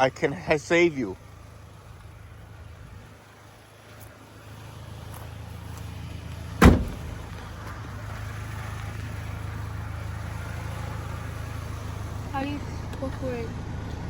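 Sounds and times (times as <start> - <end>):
truck engine idling: 0.0 - 14.0
door slamming: 6.6 - 7.5.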